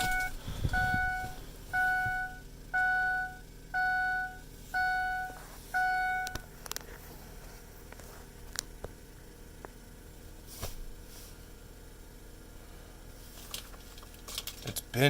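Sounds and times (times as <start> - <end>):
dashboard warning chime: 0.0 - 6.5.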